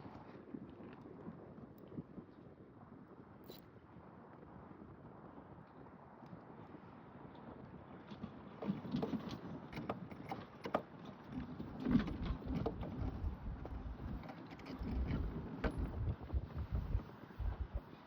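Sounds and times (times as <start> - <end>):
ice boat runners rumbling: 7.7 - 18.0
hull and rigging clicks: 8.0 - 18.0.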